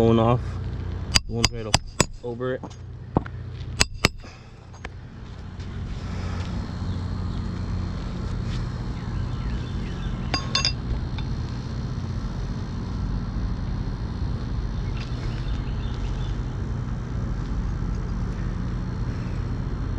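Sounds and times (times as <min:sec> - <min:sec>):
hammer striking nail: 0:01.1 - 0:02.3, 0:03.8 - 0:04.4.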